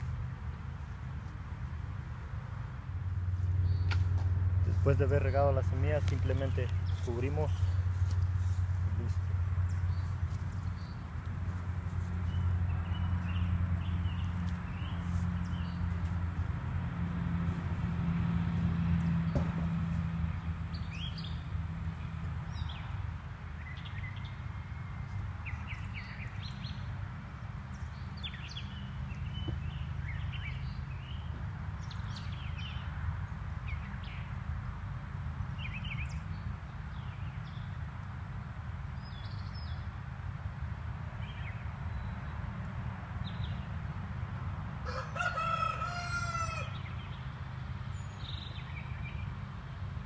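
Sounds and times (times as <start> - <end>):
small birds chirping: 4.7 - 16.2, 23.6 - 27.0, 46.6 - 49.8.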